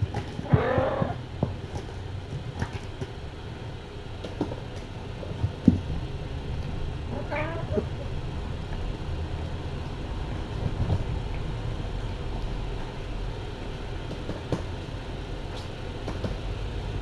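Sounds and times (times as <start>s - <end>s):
kitten meowing: 0.4s - 1.2s, 7.1s - 7.9s.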